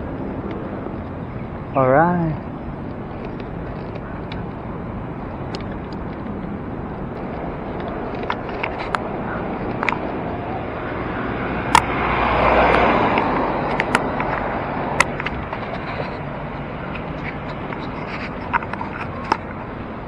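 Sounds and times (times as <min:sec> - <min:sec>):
street traffic: 0:00.0 - 0:20.0
wind rush: 0:02.4 - 0:20.0
bicycle clicks and ticks: 0:11.7 - 0:11.9.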